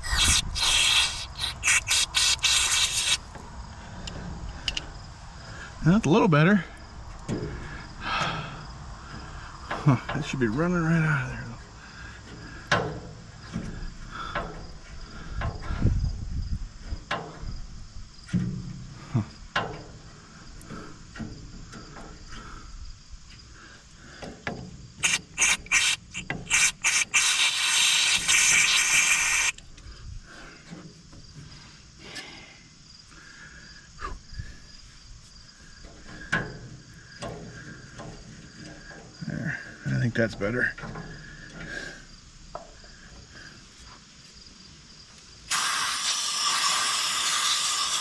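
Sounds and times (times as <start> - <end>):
aerosol spray hissing: 0.0 - 3.3, 25.0 - 29.6, 45.5 - 48.0.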